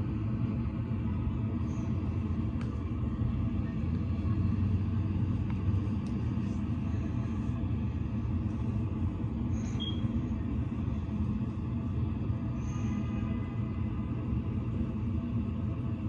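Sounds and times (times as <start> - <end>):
steady low rumble: 0.0 - 16.0
faint high squeak: 9.6 - 10.1.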